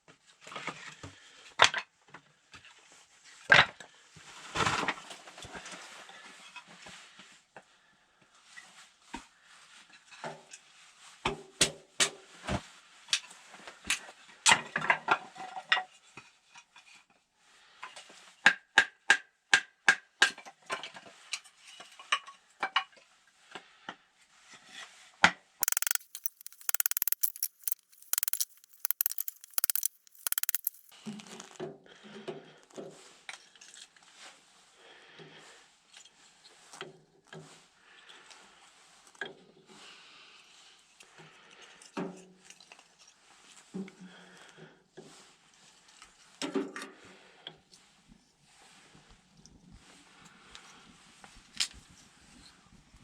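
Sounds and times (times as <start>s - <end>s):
objects clicking and clinking: 25.6s - 30.9s.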